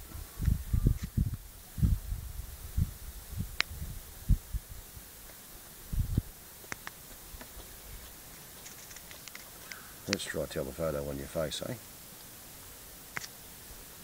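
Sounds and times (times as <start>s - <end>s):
low thumps and puffs on microphone: 0.0s - 5.1s, 5.8s - 6.3s
sharp clicks: 6.7s - 7.5s, 8.6s - 10.3s.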